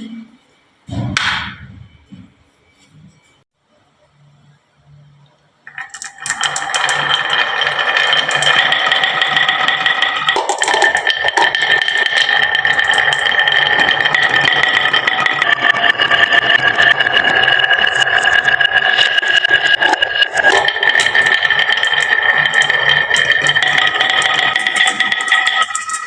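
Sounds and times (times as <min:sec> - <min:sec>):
glass marbles rolling and clattering: 0:05.7 - 0:26.0.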